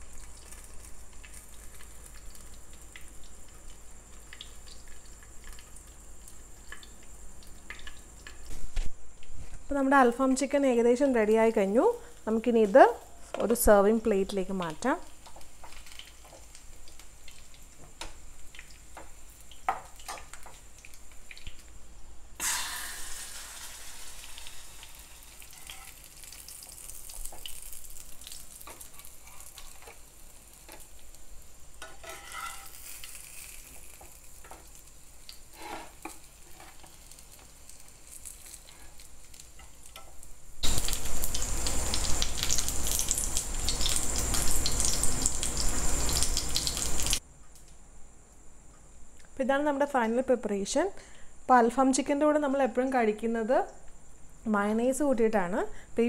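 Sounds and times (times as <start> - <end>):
chicken sizzling in a pan: 0.0 - 8.6, 11.7 - 47.2
loud steady hiss: 16.5 - 29.0, 32.6 - 49.1.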